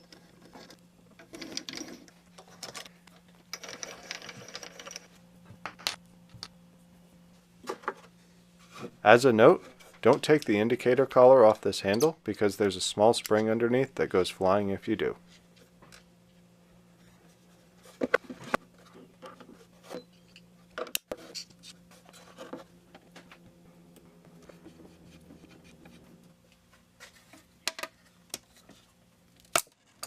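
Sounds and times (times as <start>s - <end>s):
faint steady hum: 0.0s - 30.0s
clicks and knocks of small parts: 29.4s - 30.0s.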